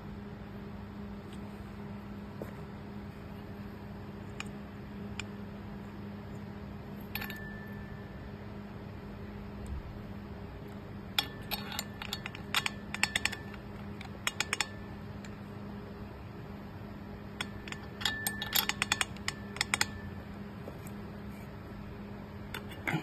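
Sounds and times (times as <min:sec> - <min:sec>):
steady low hum: 0:00.0 - 0:23.0
grinder clicks and clinks: 0:11.2 - 0:14.8.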